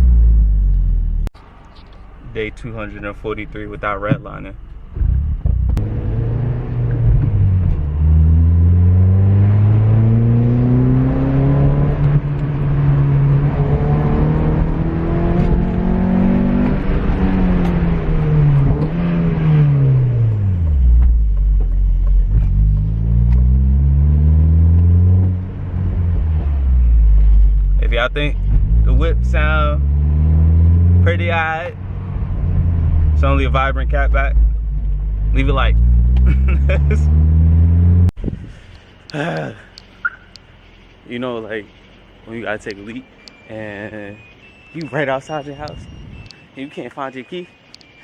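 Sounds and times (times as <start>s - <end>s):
car engine accelerating: 4.9s - 38.2s.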